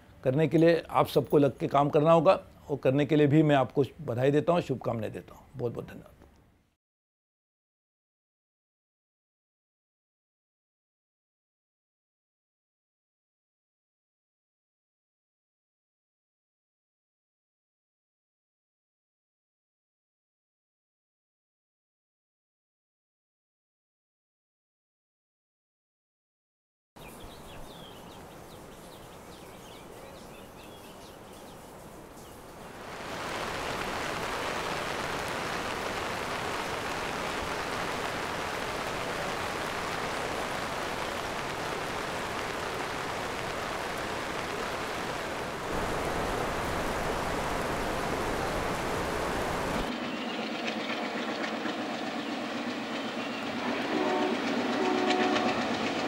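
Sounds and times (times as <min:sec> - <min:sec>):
train running on rails: 0:33.1 - 0:56.0
train horn: 0:53.5 - 0:55.8.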